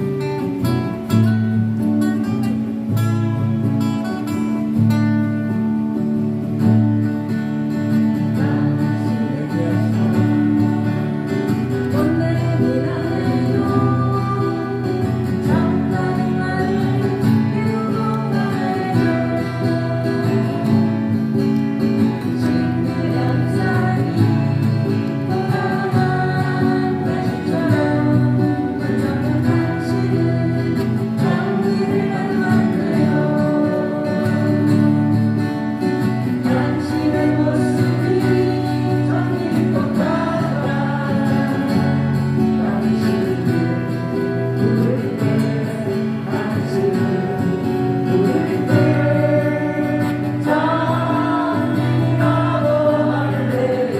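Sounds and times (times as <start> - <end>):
acoustic guitars playing: 0.0 - 53.9
people singing: 7.9 - 53.9.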